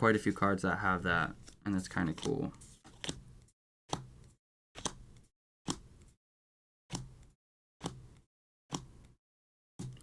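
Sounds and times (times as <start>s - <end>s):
trading cards flipped: 2.2s - 3.2s.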